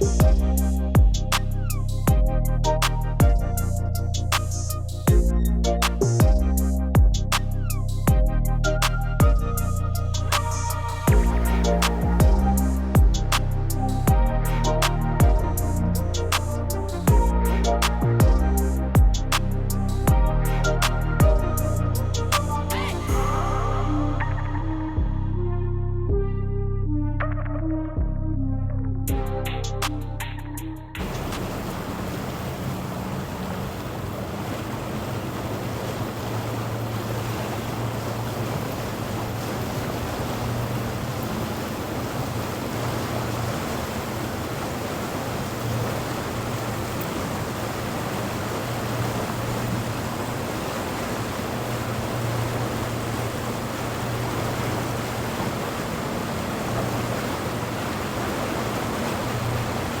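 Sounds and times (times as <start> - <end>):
water wash: 0.0 - 24.5, 31.0 - 60.0
boat engines humming: 0.0 - 24.9, 31.0 - 60.0
wind noise on microphone: 0.0 - 26.5.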